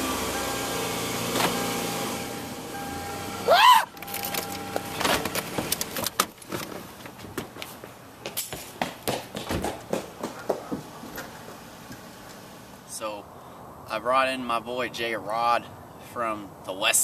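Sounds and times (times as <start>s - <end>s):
motor-like hum: 0.0s - 5.6s.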